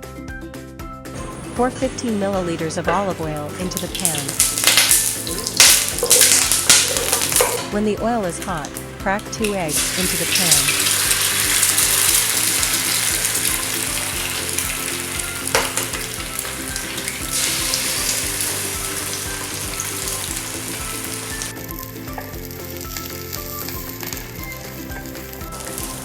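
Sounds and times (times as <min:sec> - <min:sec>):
eggs sizzling in a pan: 0:01.2 - 0:26.0.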